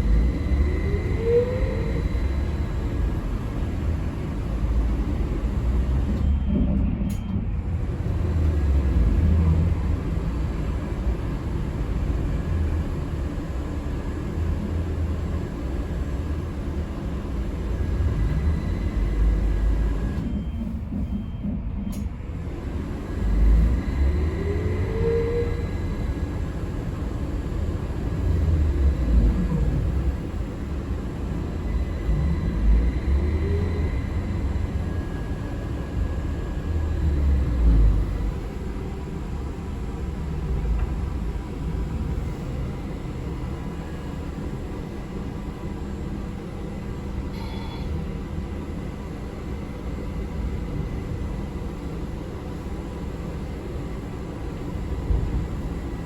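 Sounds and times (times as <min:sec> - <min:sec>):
short rising whine: 0:00.0 - 0:06.3.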